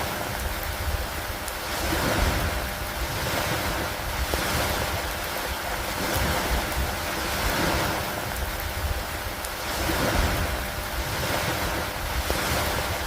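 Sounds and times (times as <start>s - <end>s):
rain on wood and water: 0.0s - 13.0s
wind: 0.0s - 13.0s.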